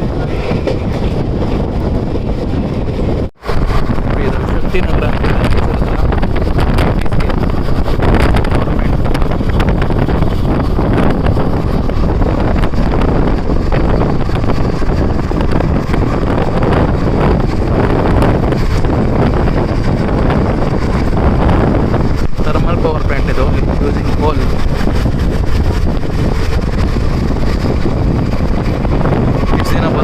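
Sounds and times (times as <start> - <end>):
train wheels rushing on rail: 0.0 - 30.0
wind buffeting microphone: 0.0 - 30.0.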